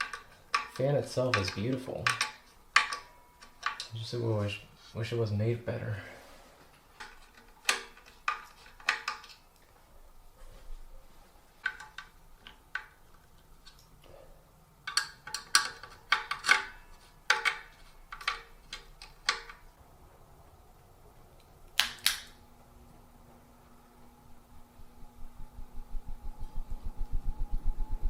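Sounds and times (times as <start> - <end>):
low steady hum: 16.8 - 28.0.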